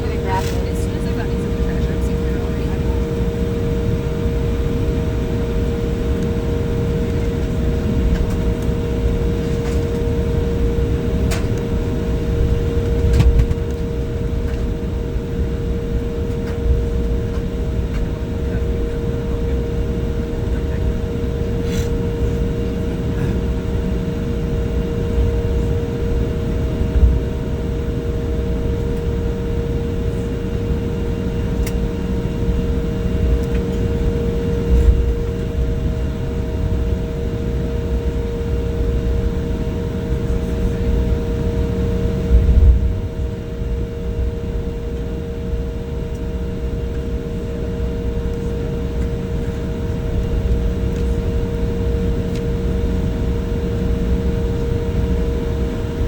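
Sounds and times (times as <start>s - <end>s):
jet engine whine: 0.0s - 56.0s
heavy rumble: 42.0s - 43.2s.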